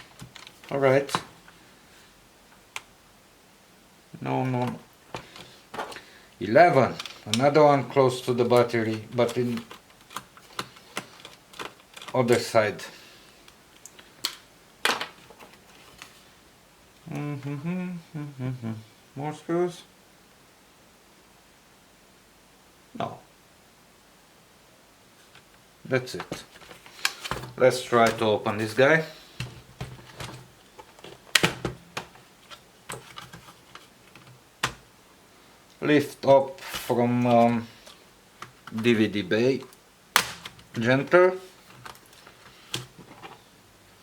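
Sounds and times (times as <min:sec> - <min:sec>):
man muttering: 0:17.0 - 0:19.8.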